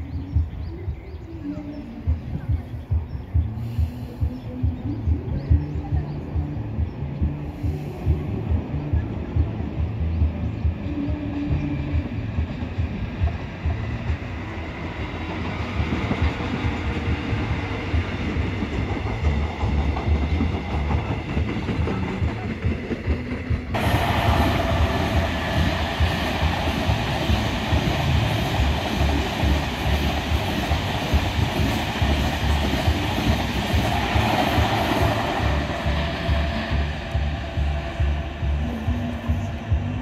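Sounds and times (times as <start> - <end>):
passenger train rumbling past: 0.0 - 40.0
wheels clacking over rails: 11.9 - 40.0.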